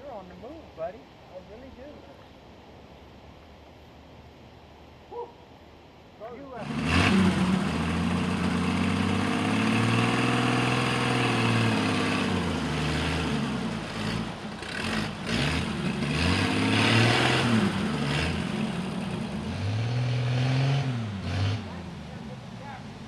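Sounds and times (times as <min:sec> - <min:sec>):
truck engine revving: 0:06.6 - 0:22.2.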